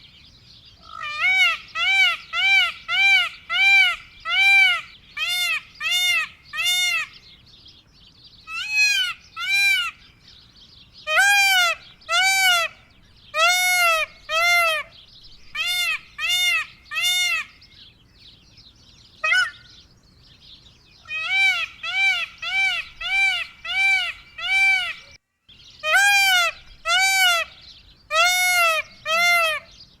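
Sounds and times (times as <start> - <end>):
peacock honking calls: 0.8 - 7.2, 8.5 - 10.0, 11.0 - 15.0, 15.6 - 17.6, 19.2 - 19.7, 21.0 - 25.2, 25.8 - 29.8.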